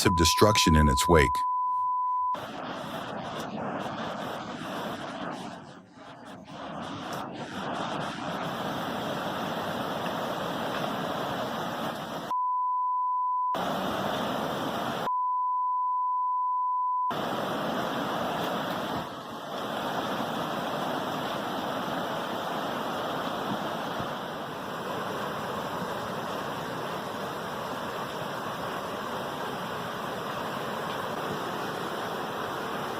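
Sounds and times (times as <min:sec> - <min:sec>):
censor bleep: 0:00.0 - 0:02.4, 0:12.3 - 0:13.6, 0:15.1 - 0:17.1
floodwater rushing: 0:17.1 - 0:32.9.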